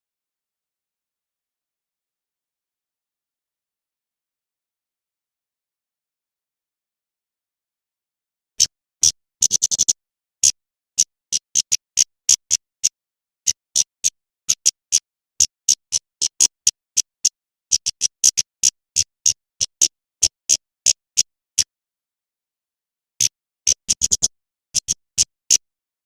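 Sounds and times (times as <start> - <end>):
bird chipping calls: 9.4 - 12.9, 23.7 - 25.0.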